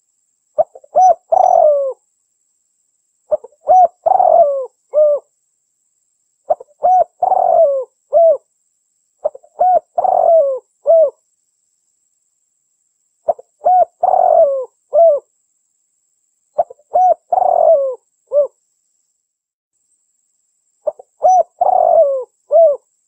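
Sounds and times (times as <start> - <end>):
dove cooing: 0.6 - 2.0, 3.3 - 5.3, 6.5 - 8.5, 9.2 - 11.2, 13.3 - 15.3, 16.6 - 18.6, 20.8 - 22.9.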